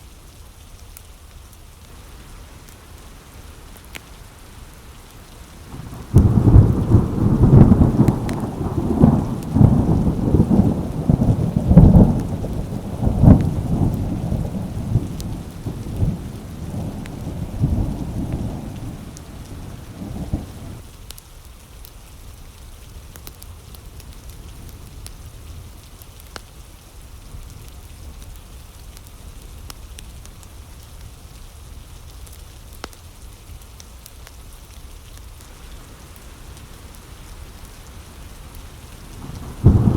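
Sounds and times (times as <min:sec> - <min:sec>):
steady rain: 0:00.0 - 0:39.9
thunder rumbling: 0:01.9 - 0:20.8, 0:35.5 - 0:39.9.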